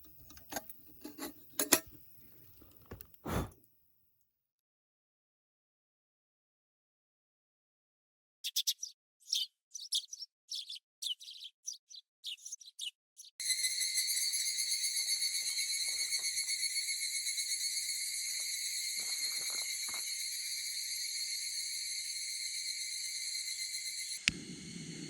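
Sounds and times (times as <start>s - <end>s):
cicadas calling: 13.4s - 25.0s.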